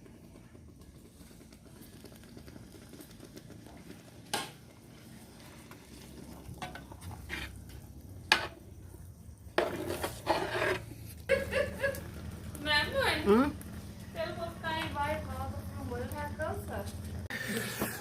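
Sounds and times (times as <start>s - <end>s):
broth simmering in pot: 0.0s - 18.0s
spoon stirring and scraping pot: 3.4s - 8.8s, 9.5s - 11.3s.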